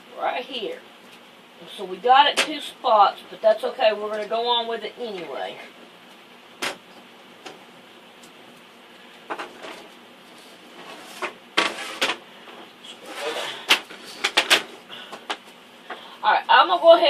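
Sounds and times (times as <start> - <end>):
rubber rubbing and rustling: 9.3 - 14.8.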